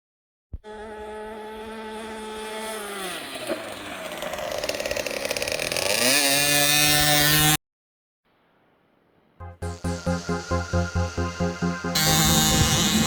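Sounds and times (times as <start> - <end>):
dirt bike engine revving: 1.0 - 7.6.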